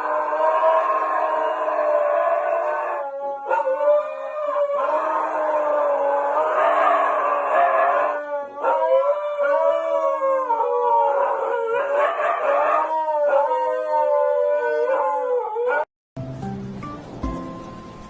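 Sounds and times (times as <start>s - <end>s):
dog howling: 0.0s - 15.9s.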